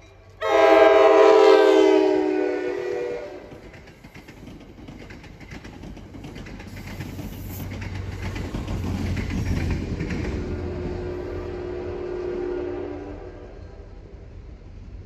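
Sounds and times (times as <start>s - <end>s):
diesel locomotive engine drone: 0.0s - 15.0s
train wheels clicking over rail joints: 2.6s - 11.7s.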